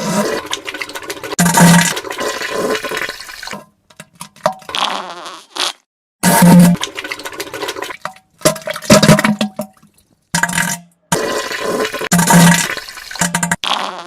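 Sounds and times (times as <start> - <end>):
wet spluttering fart sounds: 0.0 - 3.1, 4.5 - 8.0, 10.4 - 14.0.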